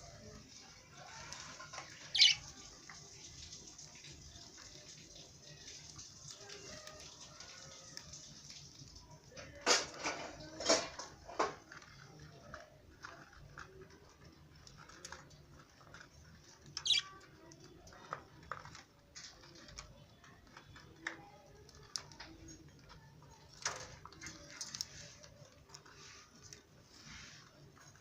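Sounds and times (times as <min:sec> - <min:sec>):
birds chirping and squeaking: 0:00.9 - 0:06.7, 0:15.2 - 0:20.8.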